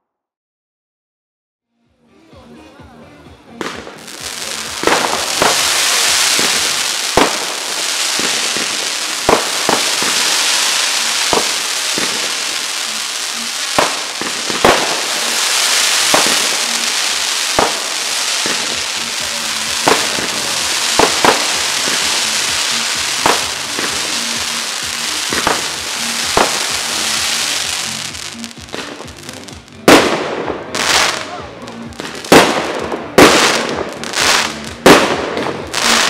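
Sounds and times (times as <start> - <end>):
fireworks hissing and crackling: 3.6 - 36.0
firework shells bursting: 4.8 - 29.0.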